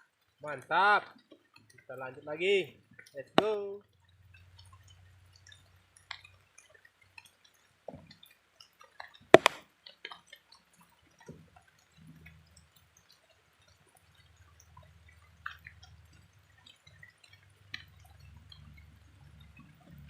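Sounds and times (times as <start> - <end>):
small ticks: 0.0 - 2.0, 2.7 - 20.0
water drips: 0.0 - 20.0
loud sharp knock: 9.4 - 9.6.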